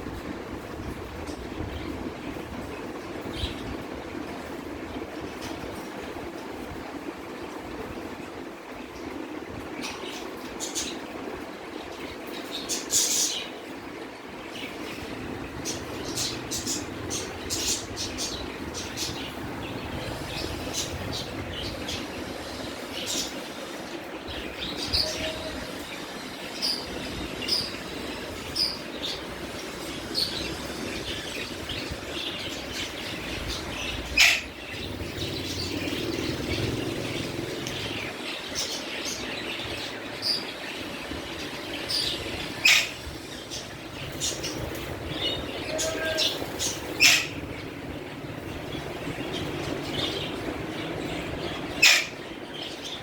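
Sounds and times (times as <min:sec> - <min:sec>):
steady background noise: 0:00.0 - 0:53.0
parrots chirping: 0:14.9 - 0:53.0
loud sharp parrot calls: 0:34.2 - 0:34.6, 0:42.6 - 0:43.0, 0:45.6 - 0:47.5, 0:51.7 - 0:52.2.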